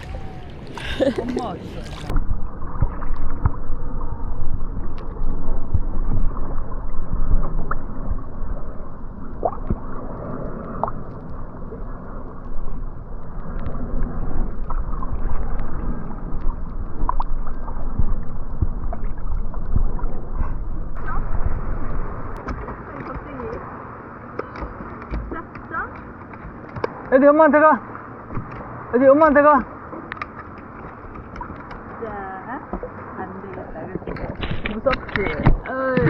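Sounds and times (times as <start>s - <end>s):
low rumble: 0.0s - 22.9s
water sloshing against kayak: 0.0s - 36.0s.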